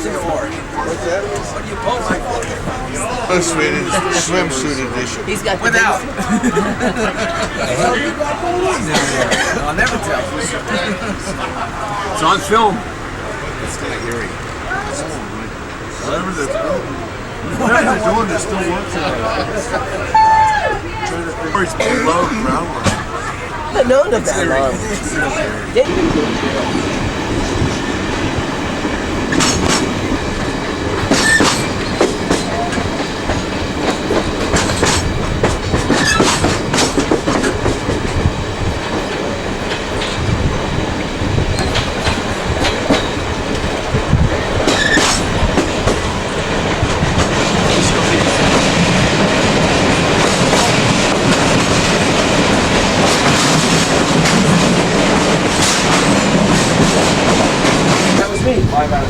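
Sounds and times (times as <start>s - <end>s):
train wheels rumbling on rail: 0.0s - 59.0s
wheels clicking over rail joints: 25.8s - 59.0s.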